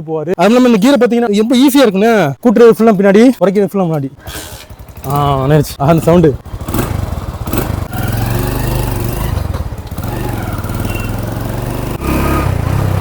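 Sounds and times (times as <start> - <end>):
motorcycle engine running: 4.6 - 13.0.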